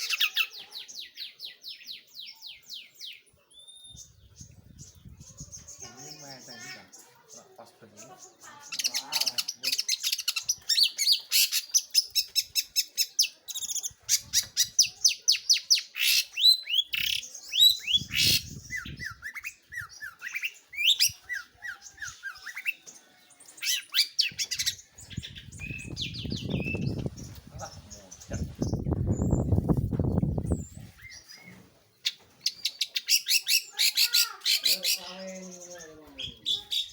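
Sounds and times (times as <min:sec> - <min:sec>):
shrike singing: 0:23.6 - 0:30.5, 0:32.5 - 0:36.9.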